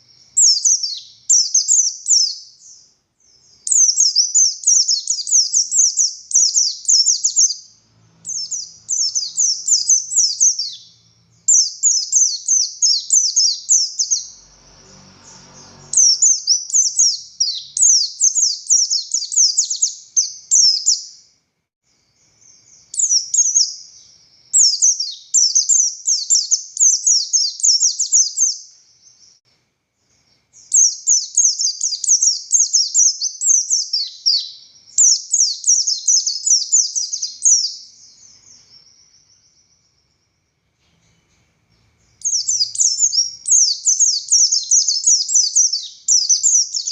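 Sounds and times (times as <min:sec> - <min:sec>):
bird singing high notes: 0:03.6 - 0:21.1.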